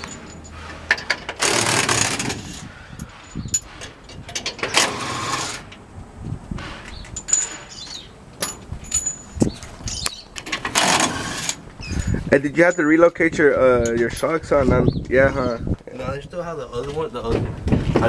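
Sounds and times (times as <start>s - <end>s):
metal tool clanks: 6.9s - 9.6s.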